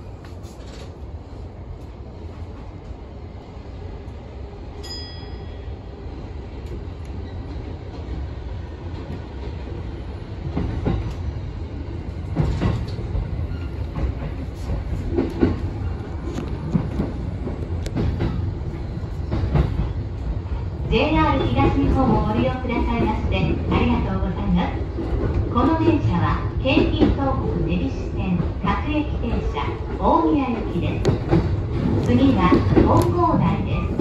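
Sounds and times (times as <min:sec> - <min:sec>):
train running rumble: 0:06.1 - 0:34.0.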